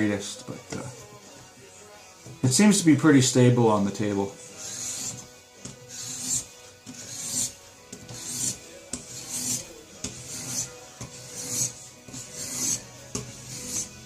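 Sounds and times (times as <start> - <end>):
stone rasping on knife edge: 4.5 - 14.0.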